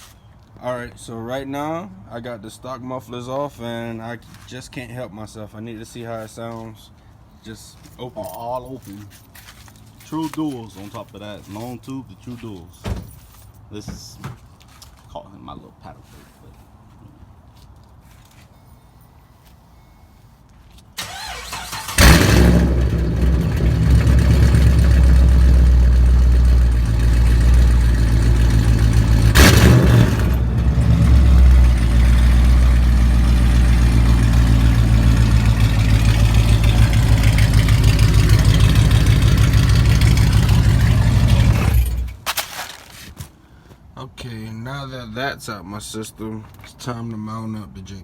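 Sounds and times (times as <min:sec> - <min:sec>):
engine cranking: 0:21.0 - 0:42.2
loud lumpy engine revving and idling: 0:21.9 - 0:42.1.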